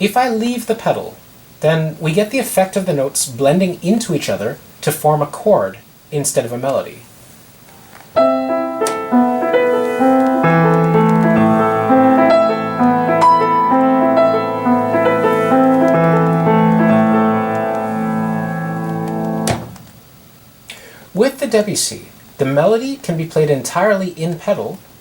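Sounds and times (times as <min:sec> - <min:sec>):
solo piano broken chords: 0:08.1 - 0:19.9.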